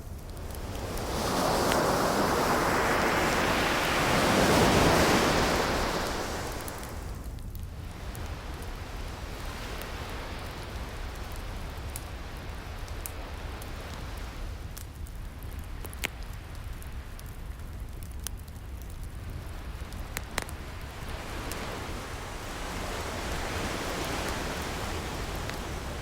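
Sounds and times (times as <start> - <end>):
ocean waves washing: 0.0 - 7.3, 19.4 - 26.0
wood fire crackling and popping: 0.0 - 26.0.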